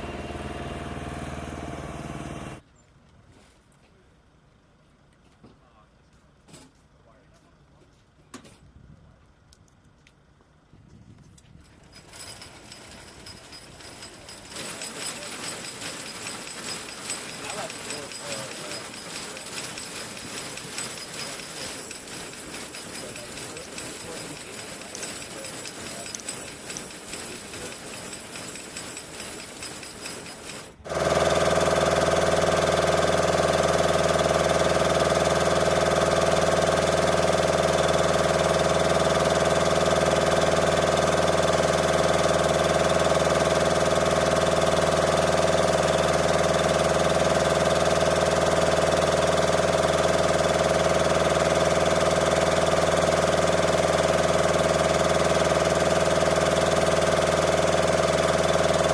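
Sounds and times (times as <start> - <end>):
engine humming: 0.0 - 2.6.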